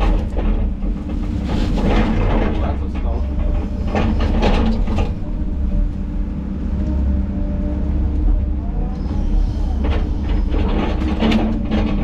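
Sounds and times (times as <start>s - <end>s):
diesel engine running: 0.0s - 12.0s
faint hydraulic whine: 3.1s - 12.0s.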